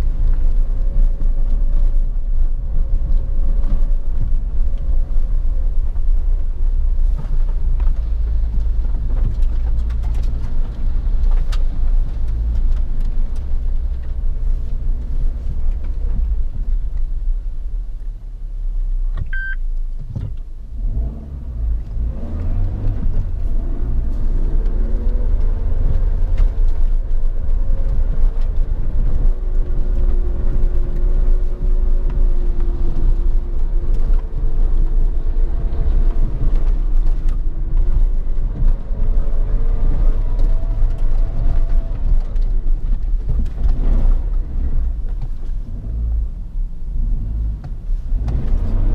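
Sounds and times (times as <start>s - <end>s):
car engine rumbling: 0.0s - 48.9s
short electronic beep: 19.2s - 19.6s.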